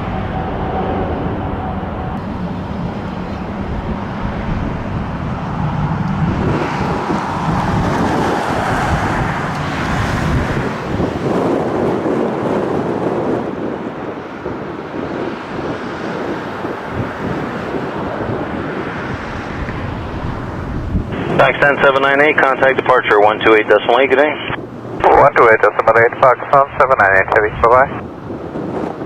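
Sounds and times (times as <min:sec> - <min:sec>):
low rumble: 0:00.0 - 0:11.2
jet engines at takeoff thrust: 0:00.0 - 0:29.0.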